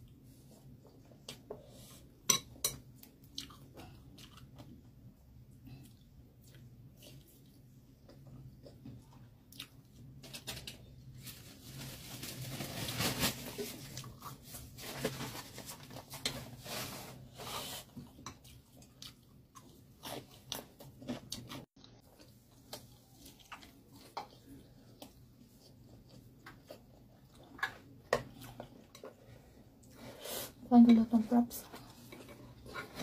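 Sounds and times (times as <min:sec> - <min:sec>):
close-up chewing: 0:03.1 - 0:10.1, 0:18.0 - 0:30.0.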